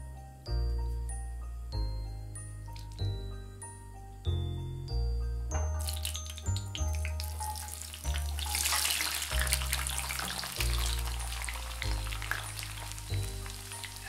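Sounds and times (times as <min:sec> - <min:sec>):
background music with bass line: 0:00.0 - 0:14.0
garlic sizzling in oil: 0:05.8 - 0:14.0.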